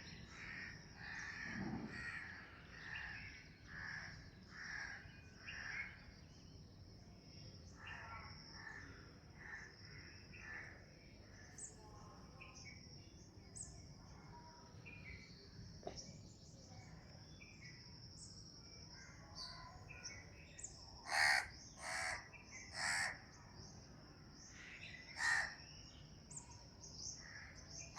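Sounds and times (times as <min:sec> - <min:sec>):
small birds chirping: 0:00.0 - 0:09.0, 0:09.6 - 0:27.9
crow cawing: 0:03.7 - 0:05.0, 0:21.1 - 0:23.2, 0:25.2 - 0:25.6.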